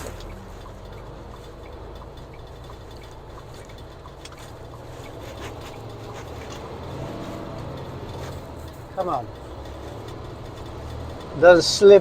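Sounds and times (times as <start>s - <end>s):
road noise: 0.0s - 12.0s
vehicle engine running: 0.0s - 12.0s
faint ticks: 0.1s - 12.0s.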